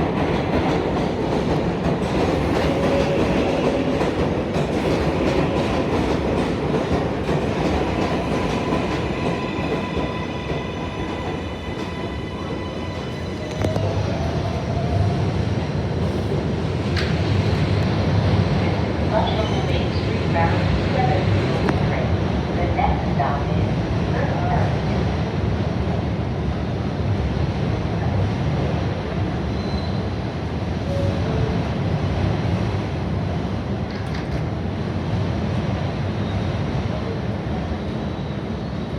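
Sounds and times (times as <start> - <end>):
subway wheels clattering over track: 0.0 - 14.5
subway train rumbling: 0.0 - 38.9
faint high squeal: 29.6 - 30.0.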